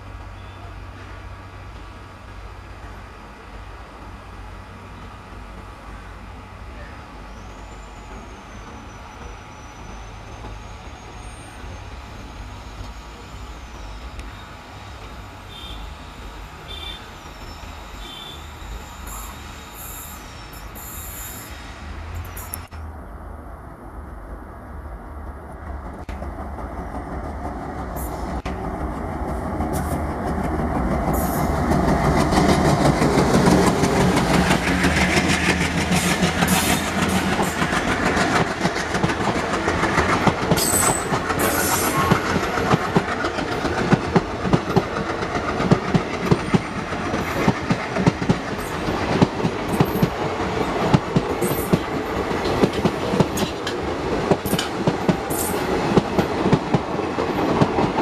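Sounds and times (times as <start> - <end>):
diesel locomotive engine throb: 1.4 - 58.0
wheels clacking over rail joints: 25.7 - 58.0.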